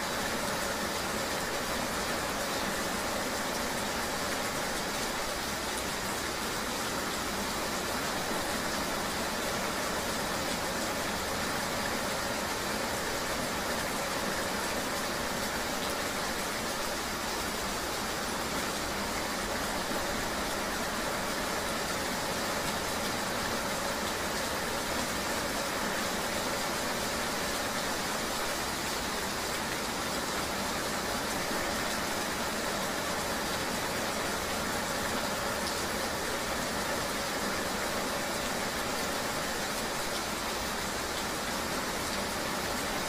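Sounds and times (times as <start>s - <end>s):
rain: 0.0s - 43.0s
road noise hiss: 0.0s - 43.0s.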